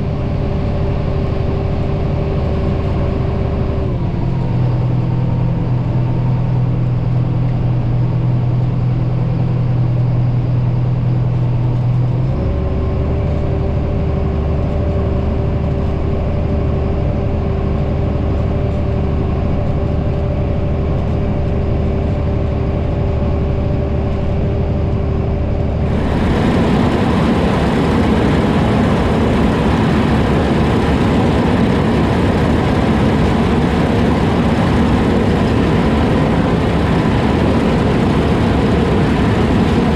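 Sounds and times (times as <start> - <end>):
diesel farm machinery running: 0.0 - 39.9
loud rushing noise: 25.7 - 39.9.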